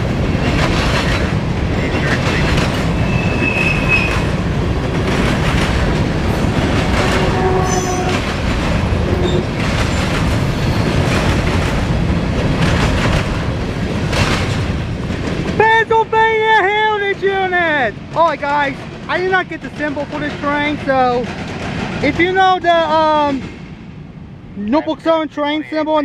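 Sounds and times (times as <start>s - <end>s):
train wheels clattering on rails: 0.0s - 24.2s
high wheel squeals: 2.9s - 4.3s, 7.1s - 8.2s.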